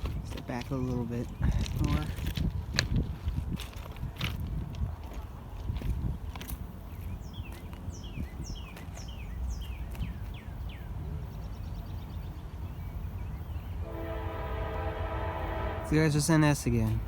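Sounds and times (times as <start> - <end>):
wind rumble: 1.0 - 17.0
songbird chirping: 6.2 - 17.0
distant train horn: 13.8 - 16.8.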